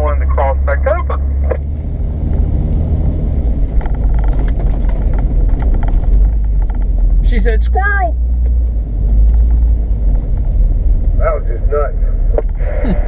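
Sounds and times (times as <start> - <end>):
vehicle engine deep rumble: 0.0 - 13.0
light rattles and clicks: 2.7 - 7.4.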